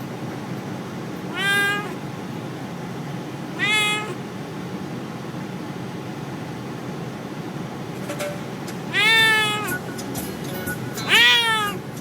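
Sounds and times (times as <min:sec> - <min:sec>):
kitten meowing: 0:01.3 - 0:02.0, 0:03.5 - 0:04.3, 0:08.9 - 0:09.8, 0:11.0 - 0:11.8.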